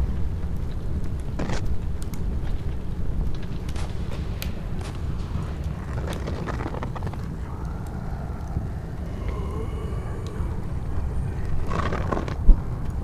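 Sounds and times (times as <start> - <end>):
steady low rumble: 1.8 - 13.0.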